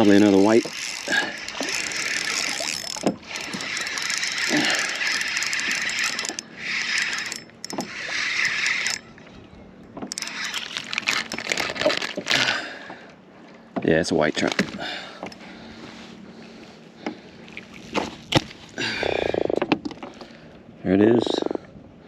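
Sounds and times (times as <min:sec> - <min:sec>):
fishing reel cranking: 0:00.0 - 0:09.2, 0:10.0 - 0:12.5
rustling and splashing: 0:00.0 - 0:09.2, 0:10.0 - 0:12.7, 0:14.2 - 0:18.8.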